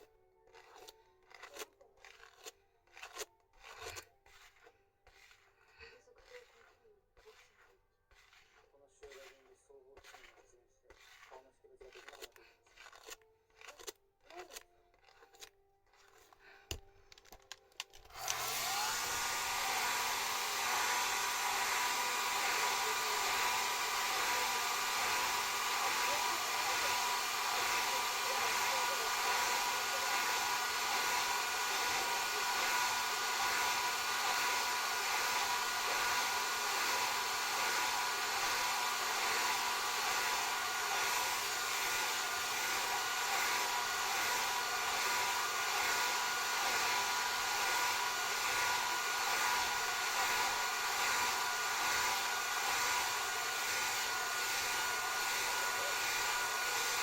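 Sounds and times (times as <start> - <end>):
hair dryer blowing: 18.0 - 57.0.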